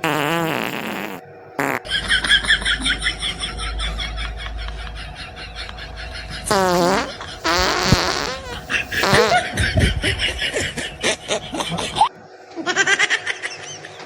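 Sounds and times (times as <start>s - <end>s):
fart noises: 0.0s - 1.9s, 6.5s - 9.6s.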